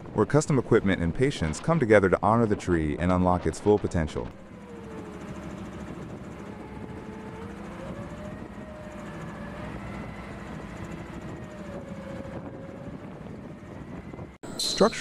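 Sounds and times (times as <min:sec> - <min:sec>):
machinery humming: 0:13.0 - 0:15.0.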